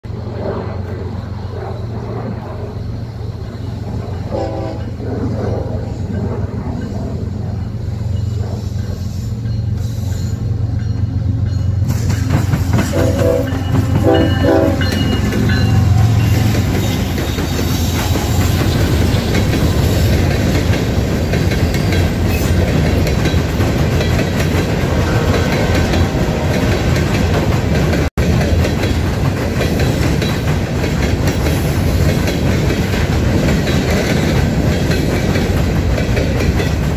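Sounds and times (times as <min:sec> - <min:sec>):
diesel locomotive engines rumbling: 0:00.0 - 0:36.9
locomotive horn: 0:04.3 - 0:05.8, 0:12.8 - 0:18.7
wheels clacking over rail joints: 0:08.8 - 0:36.9.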